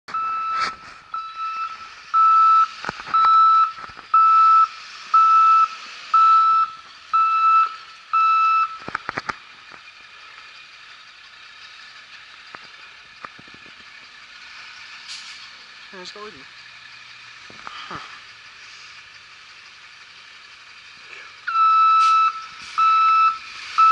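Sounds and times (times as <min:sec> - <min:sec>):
truck reversing alarm beeping: 0:00.1 - 0:09.2, 0:14.0 - 0:23.9
truck engine running: 0:00.1 - 0:23.9.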